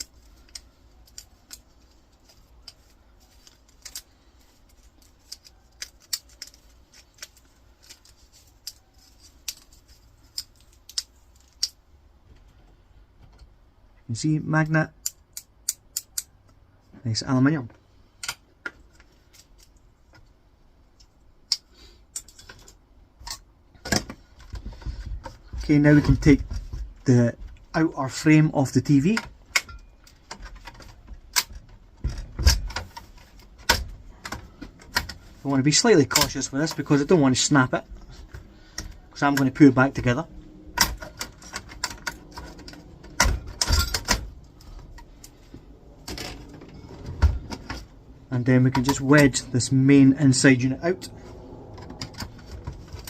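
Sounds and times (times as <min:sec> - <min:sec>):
plastic and metal parts clicking: 0:00.0 - 0:11.8.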